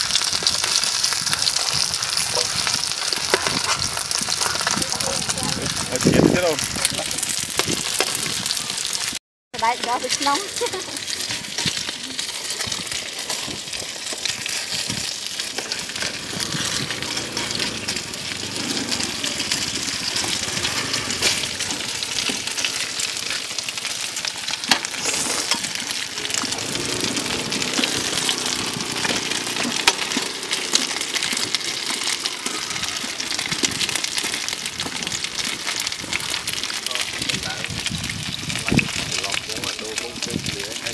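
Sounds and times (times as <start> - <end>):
food sizzling on a griddle: 0.0 - 40.9
small crackles and clicks: 0.0 - 40.9.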